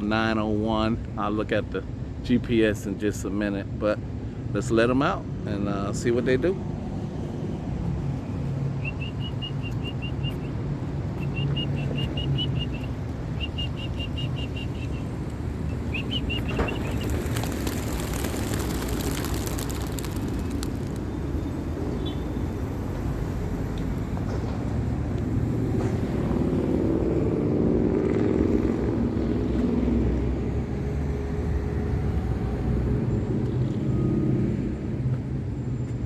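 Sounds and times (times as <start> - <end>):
songbird chirping trills: 8.8 - 10.6, 11.2 - 17.2
pigeon wings clattering: 16.1 - 21.0.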